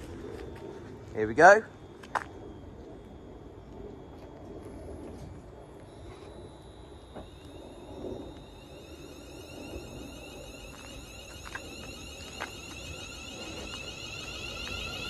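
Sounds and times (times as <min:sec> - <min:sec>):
electric train motor whine: 0:05.4 - 0:15.0.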